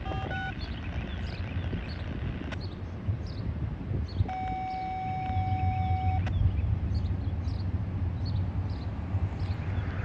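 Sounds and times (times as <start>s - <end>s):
steady electronic beep: 0.0s - 1.5s, 4.3s - 6.3s
birds chirping: 0.0s - 10.0s.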